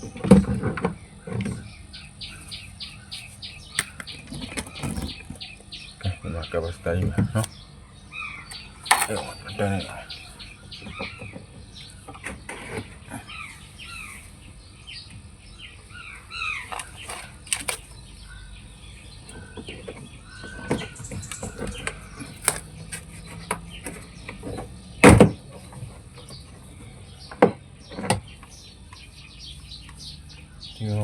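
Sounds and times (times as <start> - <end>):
birds chirping: 0.0 - 31.0
clicks and sharp knocks: 3.8 - 5.1, 8.5 - 9.3, 16.7 - 17.9, 22.4 - 23.2.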